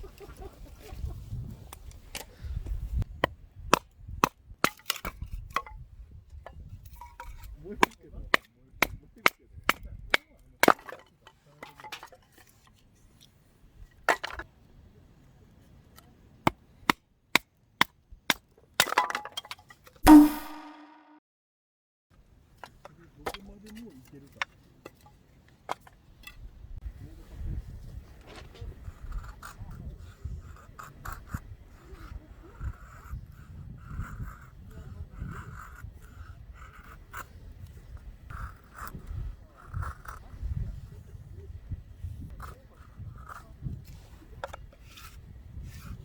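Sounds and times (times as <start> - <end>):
loud metallic clank: 20.0 - 21.0.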